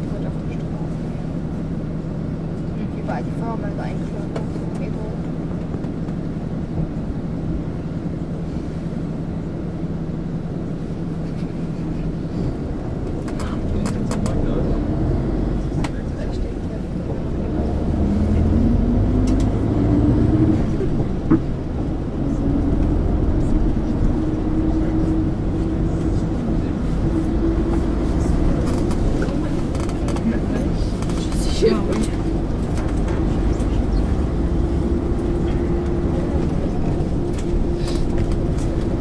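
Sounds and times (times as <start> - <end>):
bus diesel engine droning: 0.0 - 39.0
road and cabin noise: 0.0 - 39.0.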